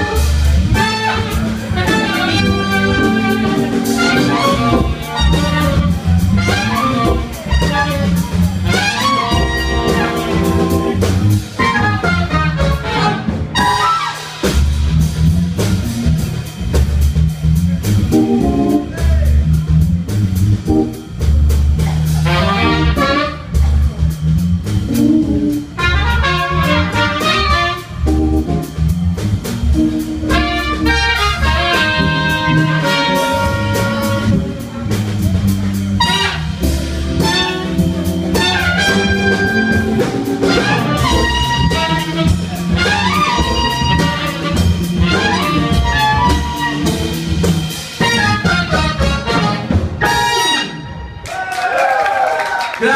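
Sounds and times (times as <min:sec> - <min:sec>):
saxophone and trumpet phrases: 0:00.0 - 0:14.4, 0:21.8 - 0:24.1, 0:25.3 - 0:28.3, 0:29.8 - 0:47.4, 0:48.0 - 0:51.2
hammond organ: 0:00.0 - 0:50.5
steady drum groove: 0:00.0 - 0:51.2.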